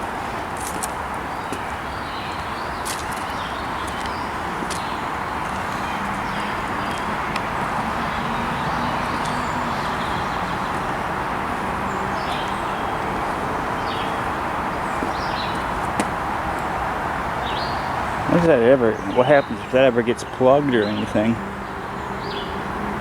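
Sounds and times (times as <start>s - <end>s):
distant highway traffic: 0.0s - 23.0s.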